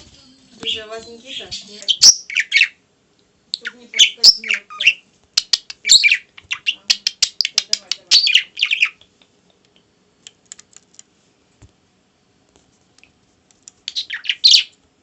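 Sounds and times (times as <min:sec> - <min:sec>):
squawky bird chirping: 0:00.6 - 0:02.8, 0:03.5 - 0:09.1, 0:13.9 - 0:14.8
sharp tapping clicks: 0:10.2 - 0:11.1.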